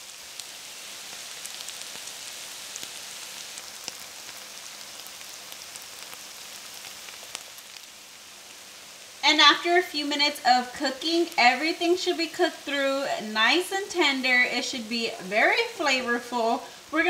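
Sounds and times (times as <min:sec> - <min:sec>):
small crackles: 0:00.0 - 0:09.3
food sizzling in a skillet: 0:00.0 - 0:17.0.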